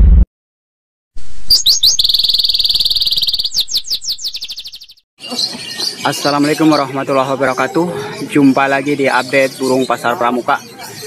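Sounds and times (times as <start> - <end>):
loud low sound: 0.0 - 0.3
songbird high trill: 1.5 - 6.4.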